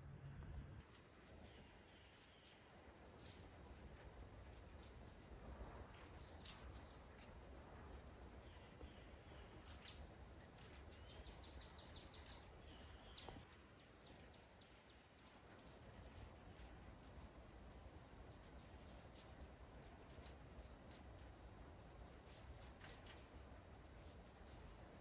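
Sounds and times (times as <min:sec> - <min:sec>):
faint birdsong: 0:00.0 - 0:25.0
low background rumble: 0:00.0 - 0:25.0.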